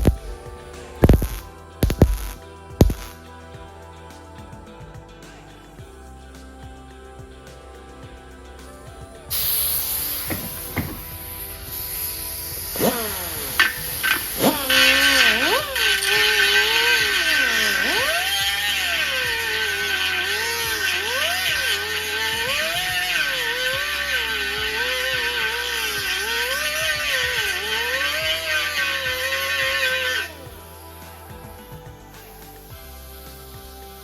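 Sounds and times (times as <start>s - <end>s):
power grinder on sheet metal: 9.3s - 30.5s.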